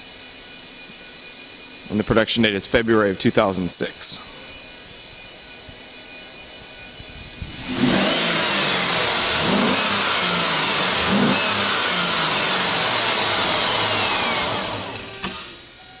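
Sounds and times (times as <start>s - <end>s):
car engine revving: 7.5s - 15.6s.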